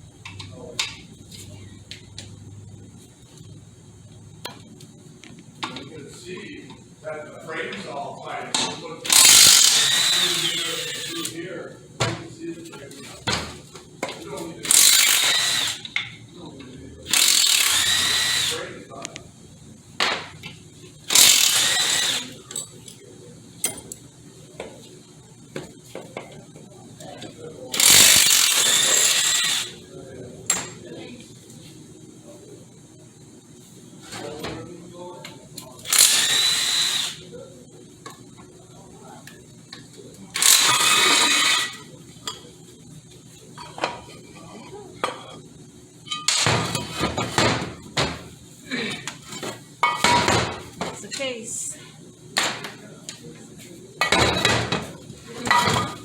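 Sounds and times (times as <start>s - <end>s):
power tool burst: 9.1s - 11.3s, 14.7s - 15.8s, 17.1s - 18.6s, 21.1s - 22.4s, 27.8s - 29.8s, 35.9s - 37.2s, 40.4s - 41.8s.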